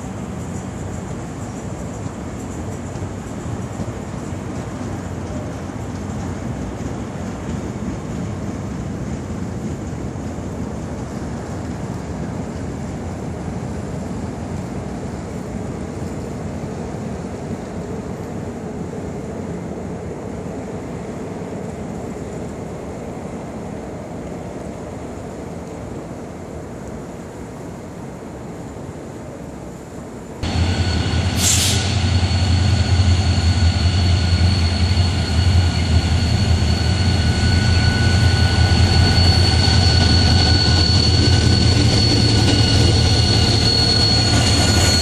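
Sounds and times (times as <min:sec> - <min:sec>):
train coaches rolling over rails: 0:00.0 - 0:16.9, 0:30.4 - 0:45.0
whine from train wheels: 0:00.0 - 0:45.0.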